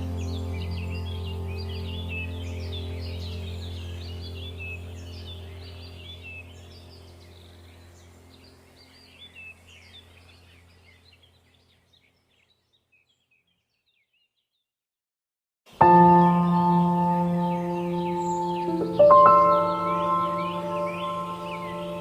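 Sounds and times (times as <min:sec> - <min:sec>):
low steady drone: 0:00.0 - 0:10.7, 0:15.8 - 0:22.0
songbirds chirping: 0:00.0 - 0:14.7, 0:15.7 - 0:22.0.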